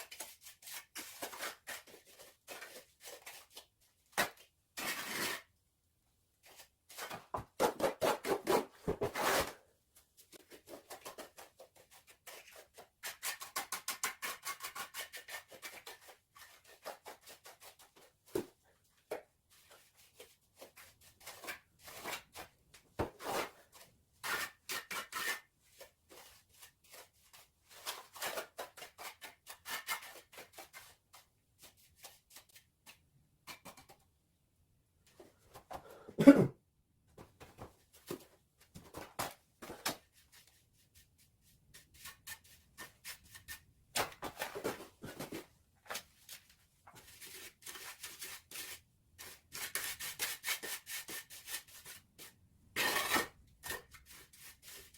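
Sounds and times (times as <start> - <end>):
trowel scraping mortar: 4.8 - 5.5, 7.7 - 9.6, 12.6 - 17.4, 24.2 - 26.0, 52.8 - 54.9.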